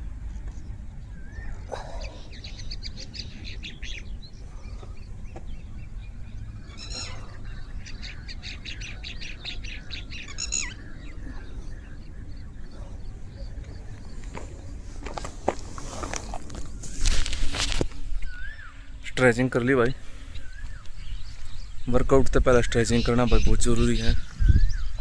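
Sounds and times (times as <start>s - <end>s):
steady low rumble: 0.0s - 19.2s
birds chirping: 0.0s - 25.0s.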